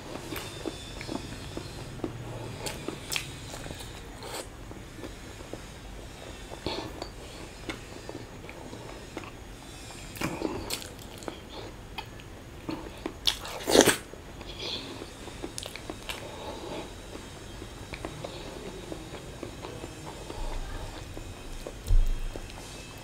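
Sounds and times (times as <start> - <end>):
person chewing and biting: 0.1 - 5.6, 6.6 - 18.4.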